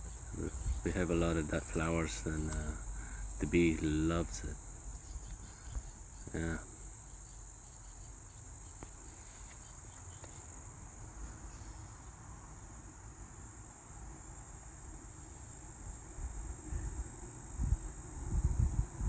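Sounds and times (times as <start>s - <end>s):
insects shrilling: 0.0s - 12.1s.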